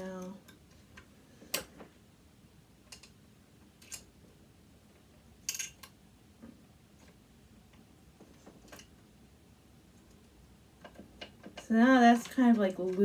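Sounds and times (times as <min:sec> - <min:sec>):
metal parts and tools clicking: 0:02.9 - 0:03.2, 0:03.8 - 0:04.1, 0:05.4 - 0:06.0.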